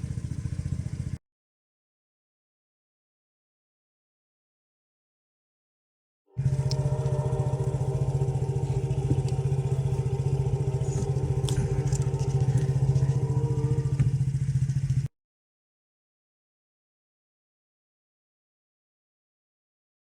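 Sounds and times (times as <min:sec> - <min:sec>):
car engine idling: 0:00.0 - 0:01.2, 0:06.4 - 0:15.1.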